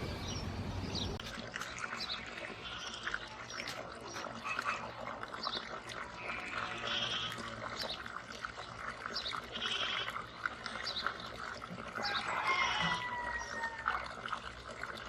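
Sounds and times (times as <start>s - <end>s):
goats bleating: 6.1s - 7.5s.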